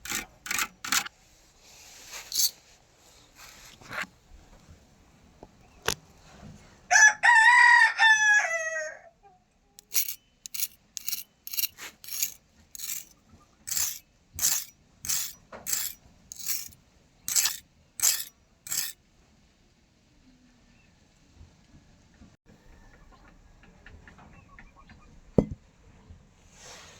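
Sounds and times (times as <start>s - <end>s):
rooster crowing: 6.9s - 9.1s.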